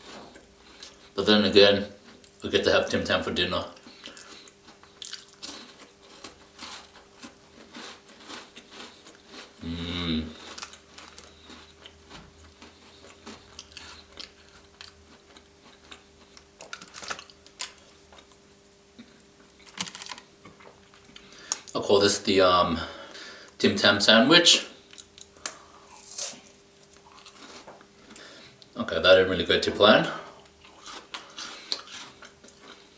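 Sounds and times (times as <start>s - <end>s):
biscuit crunching while chewed: 3.7s - 21.8s, 24.8s - 28.8s, 30.4s - 32.9s.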